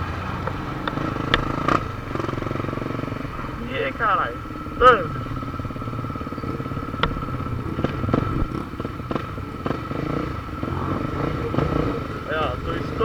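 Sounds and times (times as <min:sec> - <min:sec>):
motorcycle engine running: 0:00.0 - 0:13.0
sharp knocks or clicks: 0:07.0 - 0:09.2.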